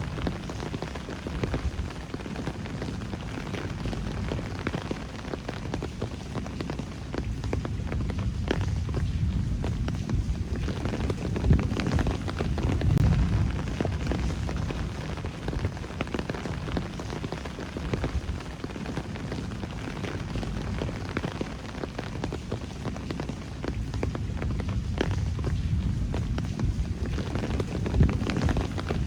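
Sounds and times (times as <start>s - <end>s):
raindrops ticking sharply: 0.0s - 29.0s
steady rain falling: 0.0s - 29.0s
low rumble: 7.6s - 17.0s, 17.8s - 22.3s.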